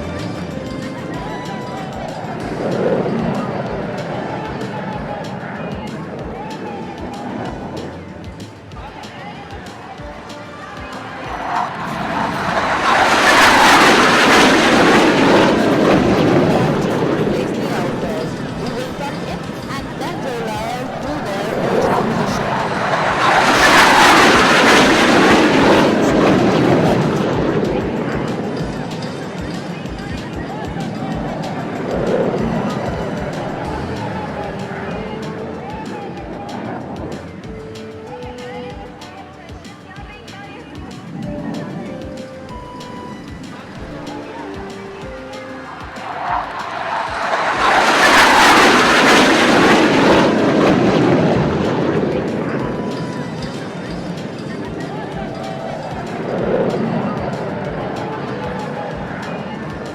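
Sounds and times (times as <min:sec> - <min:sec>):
jet flying past low: 0:09.0 - 0:37.4, 0:41.1 - 0:59.9.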